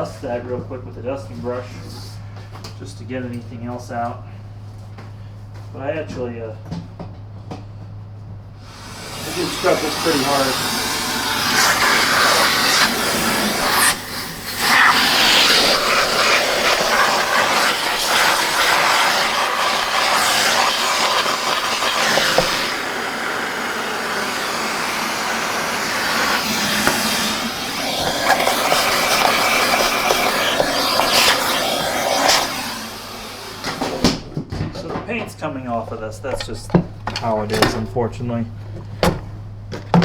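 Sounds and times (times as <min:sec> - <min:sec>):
vacuum cleaner suction hiss: 0:08.6 - 0:34.3.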